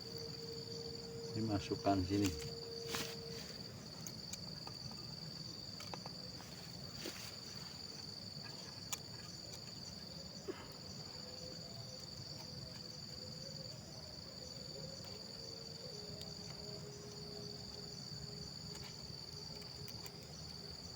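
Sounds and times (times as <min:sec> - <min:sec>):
insects chirring: 0:00.0 - 0:20.9.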